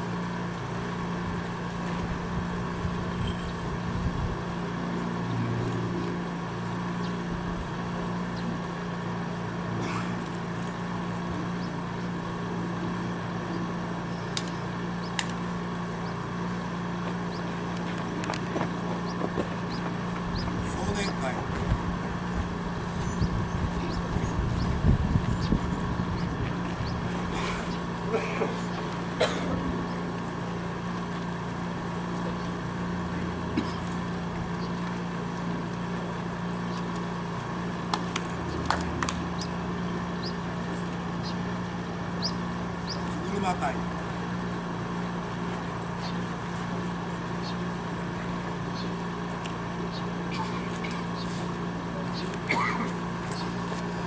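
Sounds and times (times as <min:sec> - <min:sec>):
low droning hum: 0:00.0 - 0:54.0
sharp hand claps: 0:37.9 - 0:39.2.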